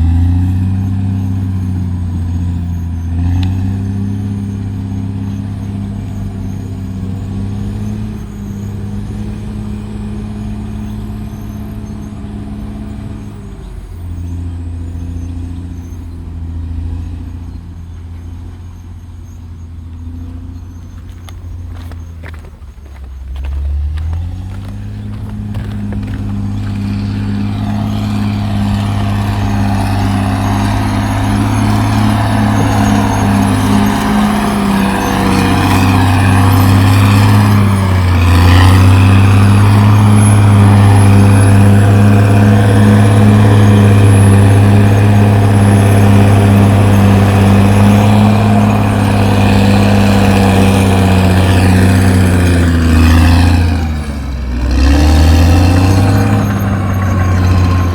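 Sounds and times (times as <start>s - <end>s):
bulldozer diesel engine running: 0.0s - 57.9s.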